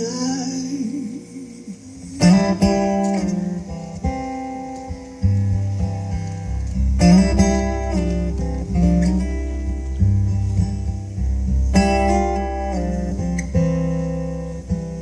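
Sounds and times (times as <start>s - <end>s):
strummed acoustic guitar: 0.0s - 15.0s
sustained bass: 0.0s - 15.0s.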